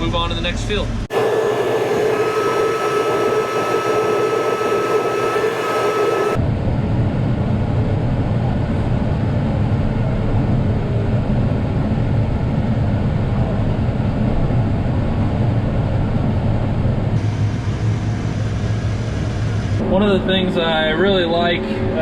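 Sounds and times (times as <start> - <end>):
tractor engine droning: 1.0 - 6.4, 17.2 - 22.0.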